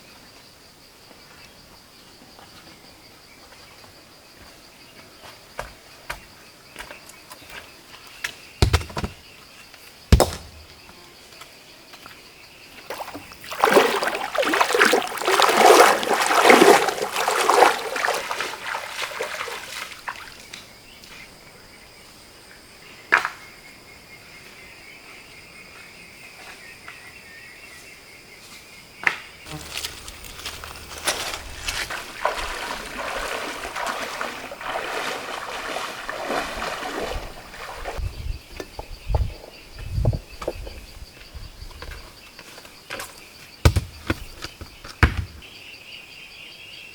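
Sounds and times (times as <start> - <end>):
insects buzzing: 0.7 - 46.9
stones knocking together: 8.6 - 9.2, 10.1 - 10.8, 29.5 - 32.5, 43.6 - 45.4
water splashing in a stream: 12.8 - 20.6, 29.5 - 38.0.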